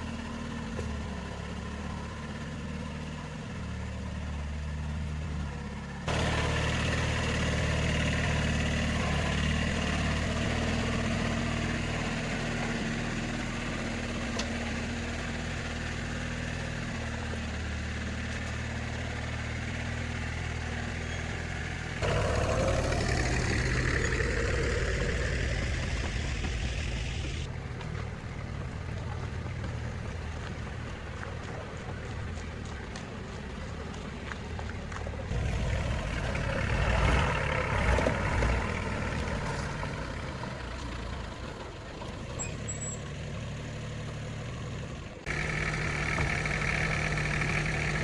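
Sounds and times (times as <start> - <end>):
vehicle engine running: 0.0 - 48.0.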